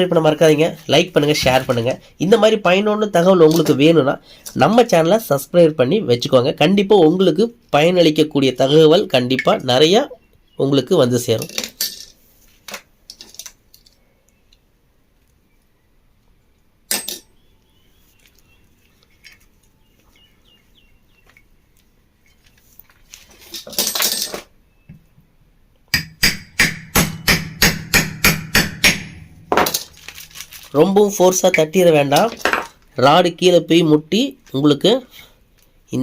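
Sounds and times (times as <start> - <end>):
hammer tapping metal rod: 25.9 - 29.4.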